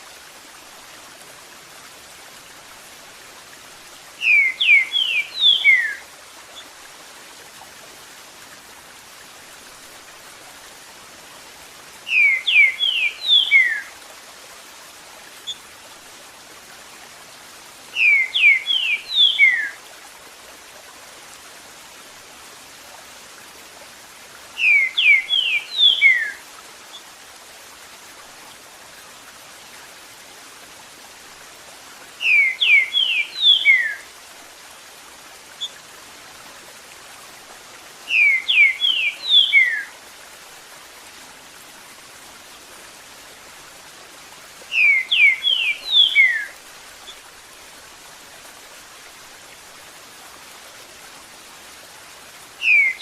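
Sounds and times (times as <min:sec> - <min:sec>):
running water: 0:00.0 - 0:53.0
bird whistling song: 0:04.2 - 0:06.0, 0:12.1 - 0:13.9, 0:18.0 - 0:19.8, 0:24.6 - 0:26.4, 0:32.2 - 0:34.0, 0:38.1 - 0:39.9, 0:44.7 - 0:46.6, 0:52.6 - 0:53.0.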